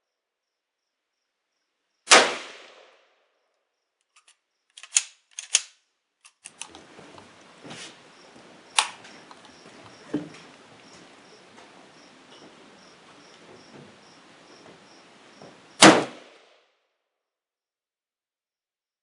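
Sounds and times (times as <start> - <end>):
rifle shot: 2.1 - 3.0, 15.8 - 16.5
sharp cracks: 2.1 - 3.1, 4.1 - 6.8, 8.7 - 9.5, 15.8 - 16.5
sharp metallic clicks: 4.0 - 6.8, 8.8 - 9.6.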